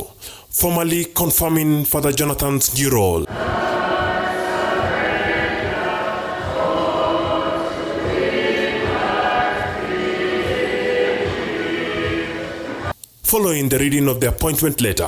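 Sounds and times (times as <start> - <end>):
low beats: 3.2 - 13.0
choir singing church music: 3.3 - 13.0.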